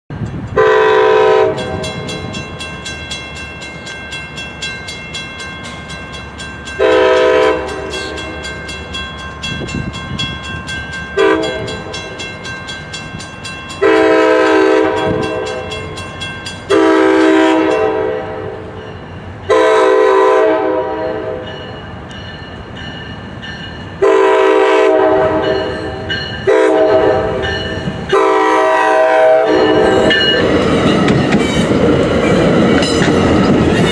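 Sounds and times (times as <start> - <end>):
train rumbling: 0.1 - 33.9
locomotive horn blasts: 0.6 - 2.3, 6.8 - 8.5, 11.2 - 12.2, 13.8 - 15.8, 16.7 - 18.8, 19.5 - 21.6, 24.0 - 30.4.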